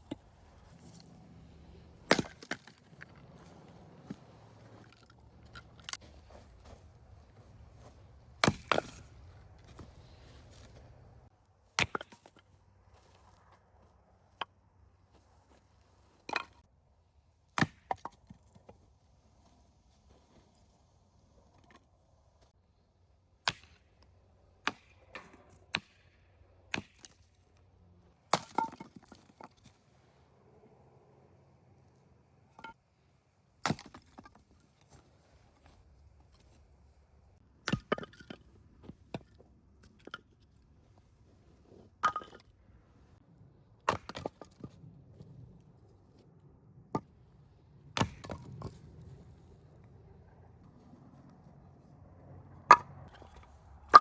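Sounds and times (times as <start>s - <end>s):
sharp knocks and cracks: 24.6s - 27.2s, 48.0s - 48.6s.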